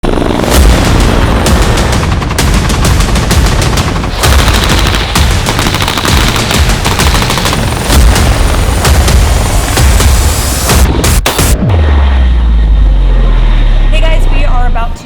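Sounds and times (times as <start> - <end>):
rapid automatic gunfire: 0.0 - 11.6.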